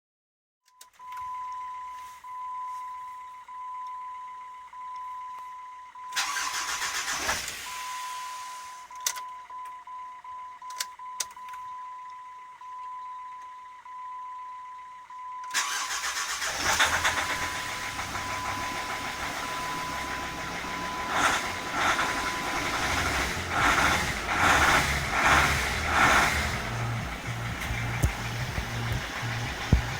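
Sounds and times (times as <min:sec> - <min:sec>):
starter cranking diesel engine: 0:06.2 - 0:07.7, 0:15.5 - 0:29.9
engine running roughly: 0:15.6 - 0:29.9
clicks: 0:26.6 - 0:29.9.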